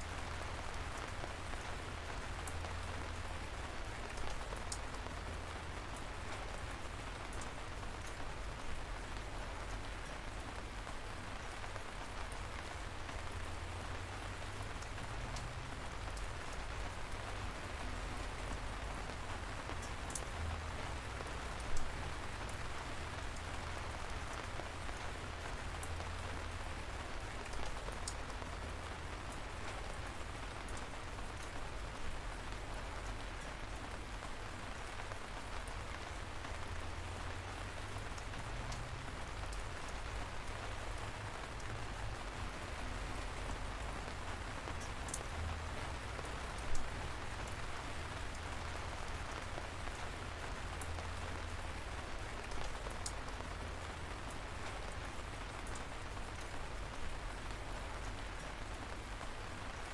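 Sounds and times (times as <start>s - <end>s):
light rain pattering: 0.0s - 59.9s.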